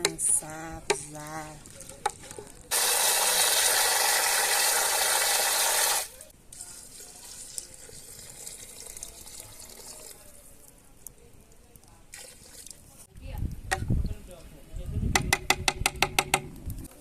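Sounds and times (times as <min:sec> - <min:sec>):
water running from a tap: 0:02.7 - 0:06.1.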